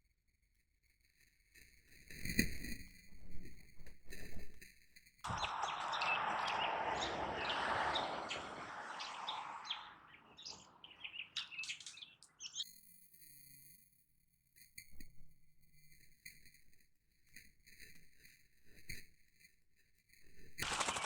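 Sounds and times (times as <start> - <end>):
rushing noise: 5.3 - 12.3
birds chirping: 5.3 - 12.6
faint steady tones: 5.3 - 12.6.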